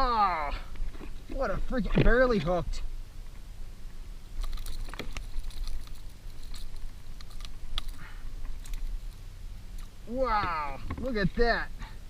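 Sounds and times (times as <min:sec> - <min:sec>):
low steady hum: 0:00.0 - 0:12.0
handling clicks and knocks: 0:09.8 - 0:11.4.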